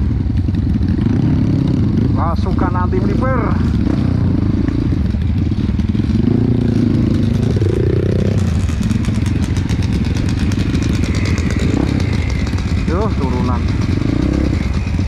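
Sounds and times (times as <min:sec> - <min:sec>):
dirt bike engine revving: 0:00.0 - 0:15.0
fast ticking rattle: 0:07.2 - 0:15.0.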